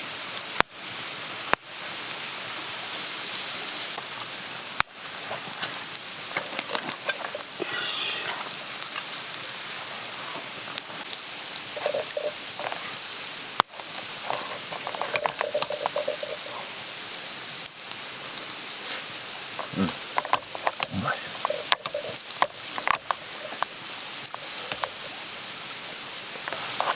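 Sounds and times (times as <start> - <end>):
food sizzling in a pan: 0.0 - 26.9
utensil clinking and scraping: 5.2 - 9.2, 11.3 - 16.8, 18.9 - 26.9.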